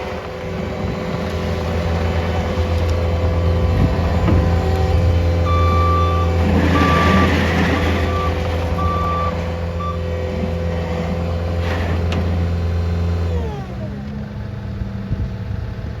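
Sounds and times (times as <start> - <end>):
diesel engine running at high revs: 0.0 - 16.0
backup alarm beeps: 5.4 - 10.0.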